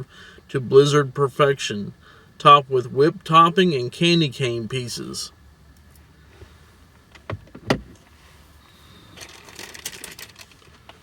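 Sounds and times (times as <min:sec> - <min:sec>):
light clicking and rattling: 0:09.2 - 0:11.0.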